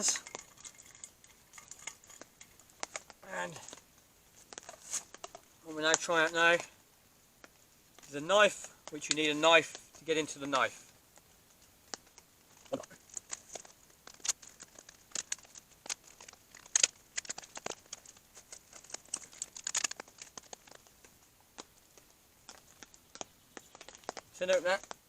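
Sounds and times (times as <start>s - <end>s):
plastic packaging crinkling: 0.0s - 6.1s, 11.8s - 25.0s.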